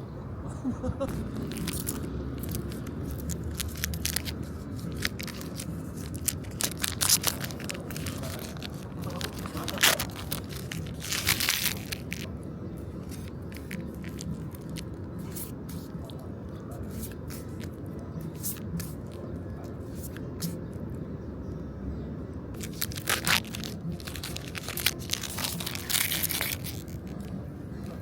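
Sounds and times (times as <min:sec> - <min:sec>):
wrappers crinkling and tearing: 0:01.1 - 0:12.3, 0:12.9 - 0:16.2, 0:16.8 - 0:19.2, 0:22.6 - 0:27.3
cards handled: 0:01.1 - 0:16.2, 0:16.8 - 0:20.6, 0:22.6 - 0:28.0.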